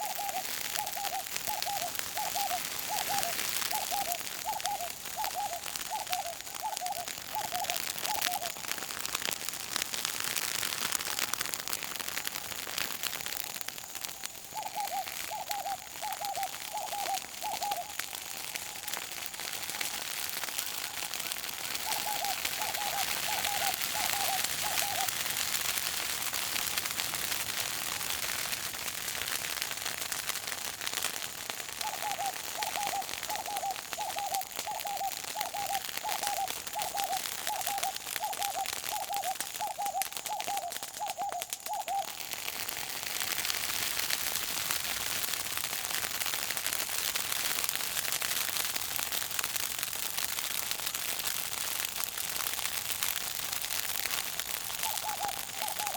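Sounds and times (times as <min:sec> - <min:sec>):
bird hooting: 0:00.0 - 0:08.5, 0:14.5 - 0:18.0, 0:21.8 - 0:25.1, 0:31.8 - 0:42.2, 0:54.8 - 0:55.9
bush fire crackling: 0:00.0 - 0:55.9.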